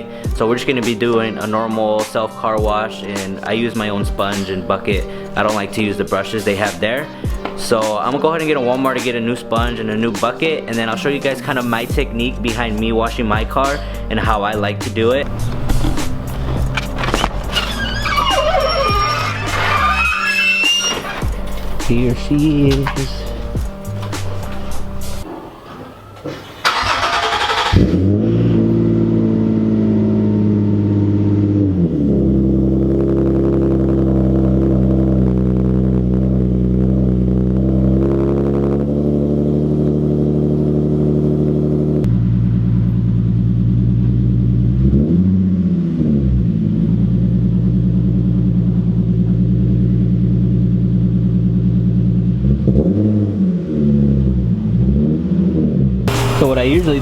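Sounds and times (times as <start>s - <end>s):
car engine starting and idling: 2.4s - 57.0s
engine throttle blips: 11.5s - 19.3s, 21.0s - 40.0s, 56.0s - 57.0s.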